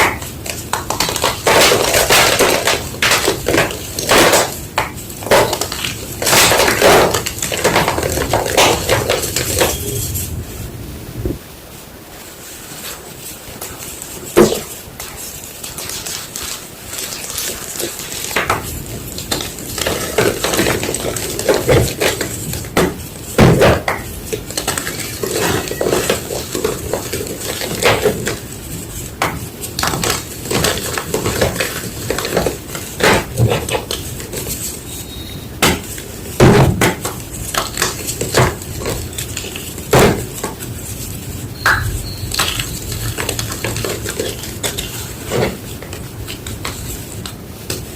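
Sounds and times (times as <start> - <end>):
chalk crunching and crumbling: 12.2 - 47.9.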